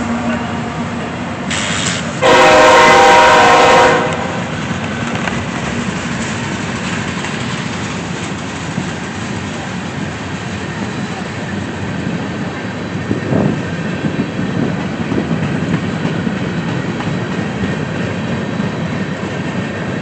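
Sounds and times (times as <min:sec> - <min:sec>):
train rumbling and clattering past: 0:00.0 - 0:20.0
train horn blast: 0:02.2 - 0:04.5.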